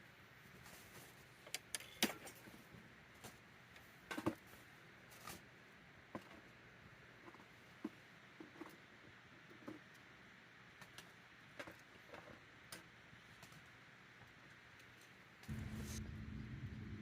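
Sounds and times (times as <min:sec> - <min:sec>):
faint campfire crackling: 0:00.0 - 0:17.0.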